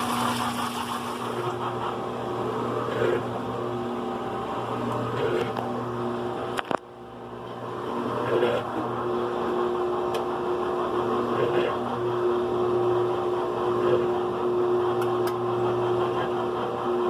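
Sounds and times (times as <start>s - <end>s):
agitator swishing water: 0.0s - 3.2s
washing machine motor hum: 0.0s - 17.0s.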